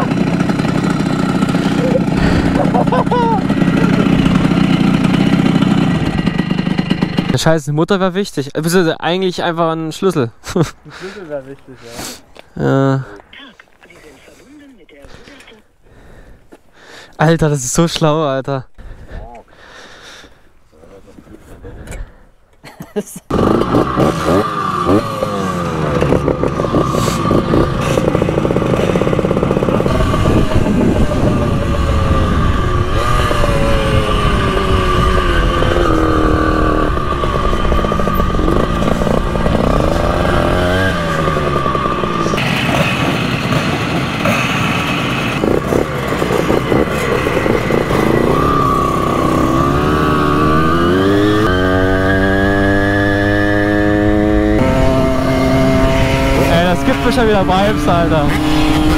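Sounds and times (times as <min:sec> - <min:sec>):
moped two-stroke engine revving: 0:00.0 - 0:07.5, 0:23.3 - 0:58.9.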